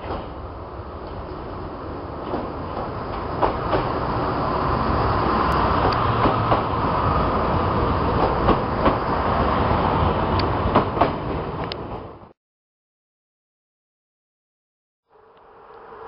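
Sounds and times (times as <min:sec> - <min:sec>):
diesel train engine rumble: 0:00.0 - 0:12.2.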